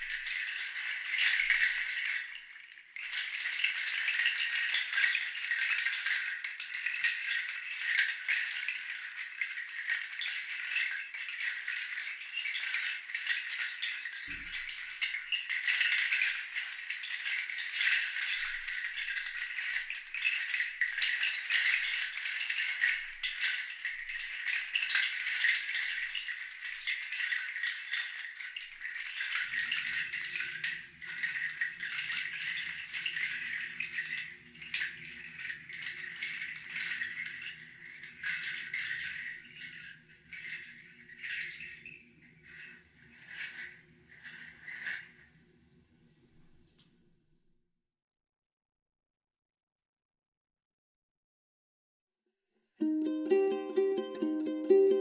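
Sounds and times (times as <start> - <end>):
hand rattle shaking: 0.0 - 45.2, 52.8 - 55.0.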